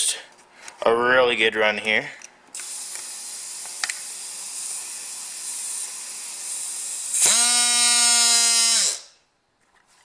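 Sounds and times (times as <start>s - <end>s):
compressed air hissing: 2.6s - 7.2s.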